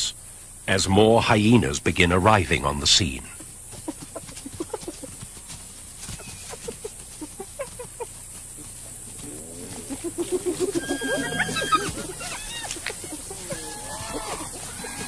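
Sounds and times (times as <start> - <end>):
hyenas yelping: 3.3 - 5.3, 6.0 - 15.0
hyenas cackling giggles: 3.3 - 15.0
hyena whoops: 10.4 - 15.0.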